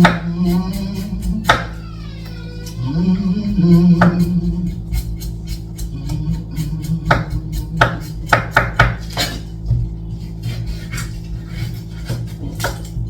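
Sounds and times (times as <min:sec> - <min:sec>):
utensils knocking on cutting board: 0:00.0 - 0:02.8, 0:03.5 - 0:13.0.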